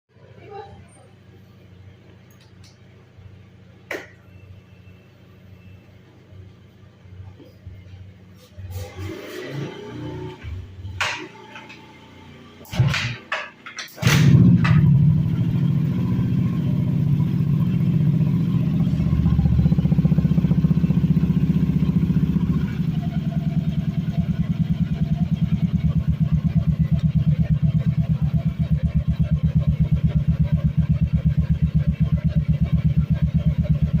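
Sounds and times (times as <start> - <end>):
motorcycle engine idling: 14.2 - 34.0.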